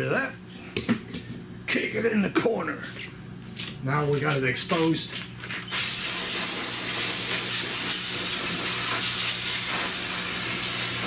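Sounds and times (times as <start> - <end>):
pressurised spray hissing: 5.7 - 11.0.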